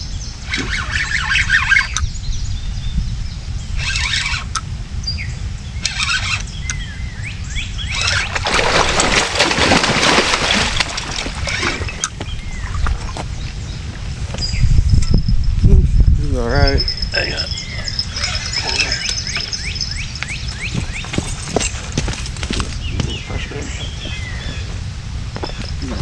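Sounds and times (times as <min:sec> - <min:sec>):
birds chirping: 0:00.0 - 0:26.0
steady low rumble: 0:01.5 - 0:03.8, 0:04.5 - 0:26.0
water splashing: 0:08.0 - 0:13.3.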